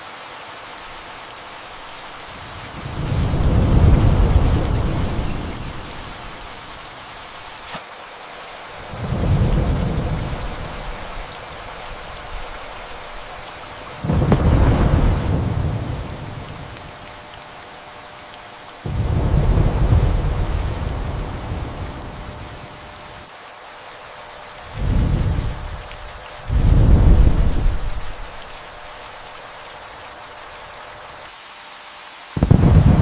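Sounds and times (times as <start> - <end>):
steady rain: 0.0 - 33.0
thunder rolling: 2.7 - 6.2, 8.9 - 11.2, 14.0 - 16.9, 18.9 - 22.6, 26.5 - 28.4, 32.4 - 33.0.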